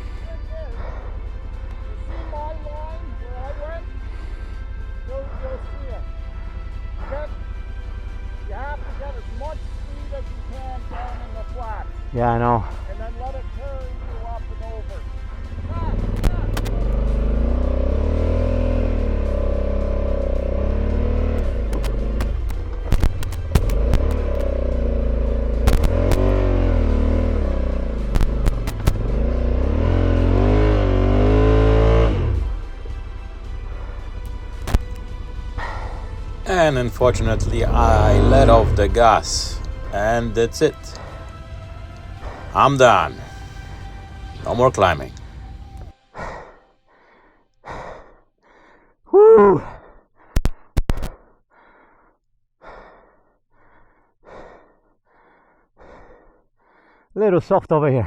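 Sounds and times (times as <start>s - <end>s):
man breathing hard: 0.7s - 2.0s, 35.4s - 36.4s, 46.1s - 57.2s
motorcycle engine revving: 0.8s - 46.0s
sharp knocks: 21.7s - 24.5s, 25.6s - 26.4s.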